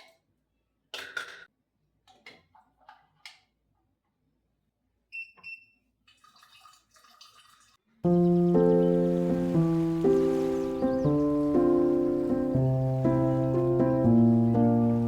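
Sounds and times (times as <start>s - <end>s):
running water hiss: 8.1s - 15.0s.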